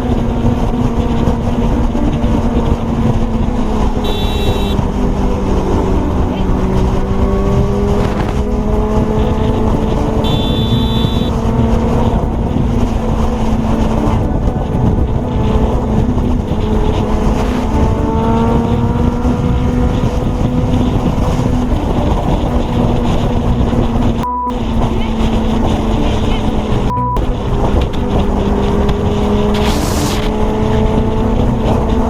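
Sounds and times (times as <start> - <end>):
motorcycle engine: 0.0 - 32.0
steady tone: 0.0 - 32.0
wind rushing: 0.0 - 32.0
short high beep: 4.0 - 4.8, 10.2 - 11.4, 24.2 - 24.6, 26.9 - 27.4.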